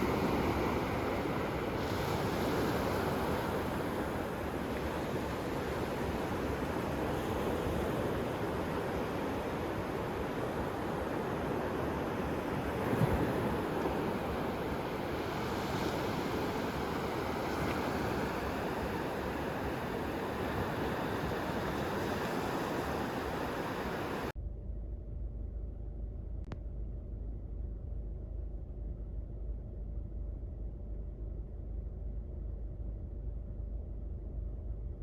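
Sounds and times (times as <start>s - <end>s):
sea surf: 0.0s - 24.3s
wind: 0.0s - 35.0s.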